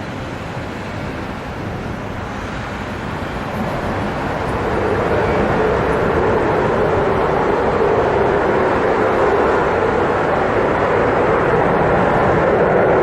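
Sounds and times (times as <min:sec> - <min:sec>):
aircraft engines: 0:00.0 - 0:13.0
droning tone: 0:03.1 - 0:13.0.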